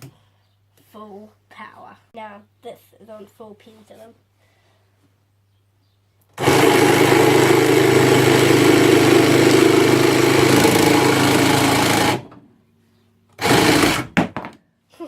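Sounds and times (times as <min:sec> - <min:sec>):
jigsaw running: 0:06.4 - 0:12.4, 0:13.4 - 0:14.2.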